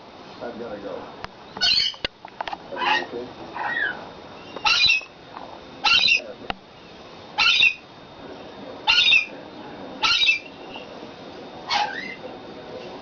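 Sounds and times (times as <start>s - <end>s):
parrot squawking: 1.6s - 2.0s, 2.8s - 5.1s, 5.8s - 6.3s, 7.4s - 7.8s, 8.8s - 9.4s, 10.0s - 10.6s, 11.6s - 12.2s.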